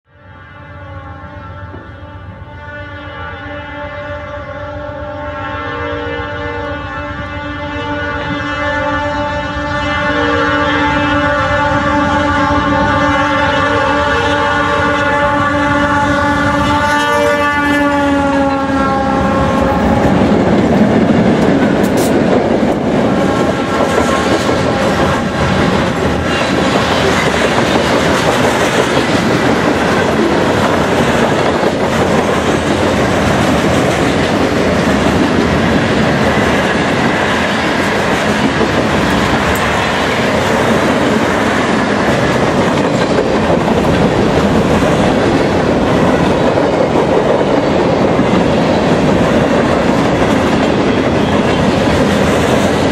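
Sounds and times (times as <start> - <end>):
locomotive horn: 0.1 - 22.2, 22.9 - 42.9
freight train wheels on track: 1.2 - 52.9.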